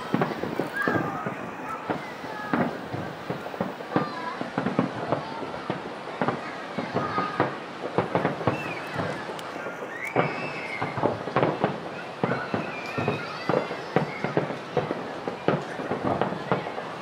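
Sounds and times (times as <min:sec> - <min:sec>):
firework shells bursting: 0:00.0 - 0:06.4, 0:07.0 - 0:16.8
rumble of distant reports: 0:00.0 - 0:10.0.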